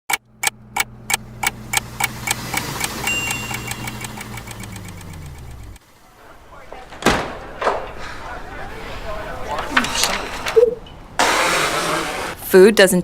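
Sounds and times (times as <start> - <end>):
sharp ticking: 0.1 - 5.8
low mechanical hum: 0.1 - 12.4.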